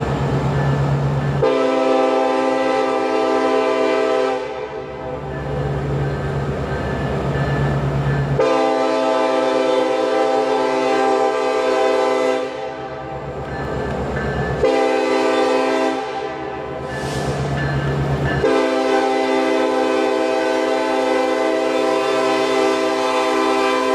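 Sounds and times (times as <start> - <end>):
model train horn chord: 1.4 - 5.1, 8.4 - 13.1, 14.6 - 16.7, 18.4 - 23.9.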